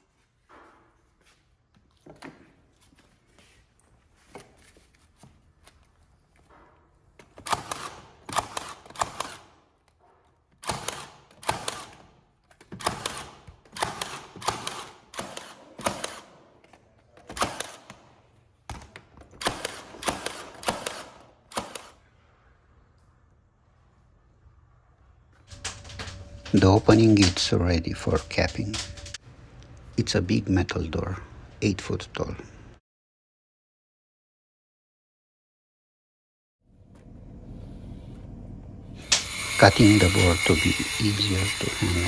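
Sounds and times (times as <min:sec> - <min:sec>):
nail gun firing into plywood: 0:07.4 - 0:09.5, 0:10.6 - 0:16.4, 0:17.3 - 0:18.0, 0:18.7 - 0:22.0
faint clicks: 0:25.5 - 0:29.9.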